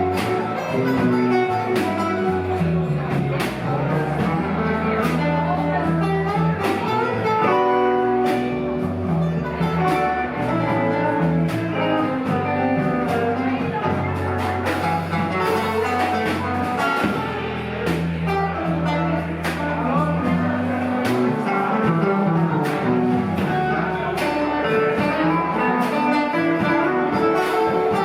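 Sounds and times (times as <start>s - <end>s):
bass notes: 0.0s - 28.0s
guitar lines: 0.0s - 28.0s
drum beat: 11.3s - 28.0s.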